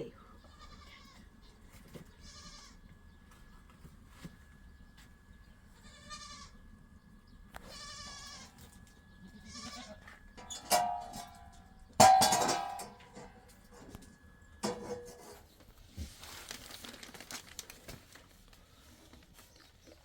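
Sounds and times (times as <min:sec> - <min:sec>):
goats bleating: 0:00.4 - 0:01.3, 0:02.2 - 0:02.8, 0:05.8 - 0:06.6, 0:07.6 - 0:08.6, 0:09.2 - 0:10.1.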